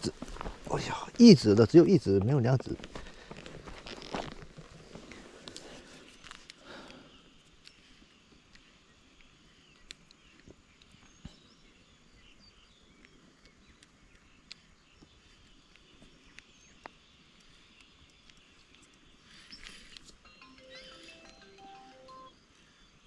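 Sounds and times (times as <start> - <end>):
soft outdoor hiss: 0.0 - 23.0
faint bird chirps: 5.8 - 23.0.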